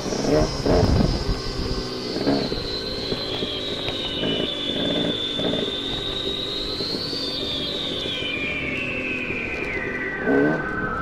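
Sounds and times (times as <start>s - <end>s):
dirt bike engine revving: 0.0s - 6.2s, 10.2s - 10.7s
high wavering whine: 0.0s - 11.0s
wind and trail rumble: 0.0s - 11.0s.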